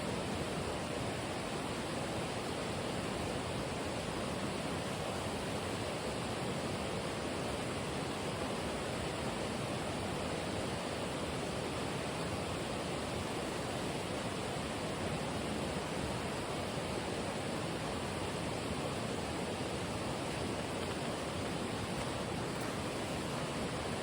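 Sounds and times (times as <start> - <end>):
flowing water rushing: 0.1 - 24.0.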